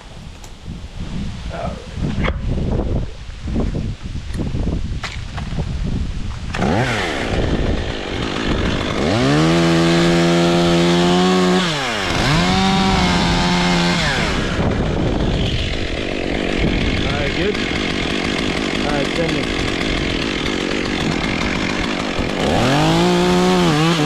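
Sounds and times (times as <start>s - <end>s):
chainsaw revving and idling: 6.4s - 24.0s.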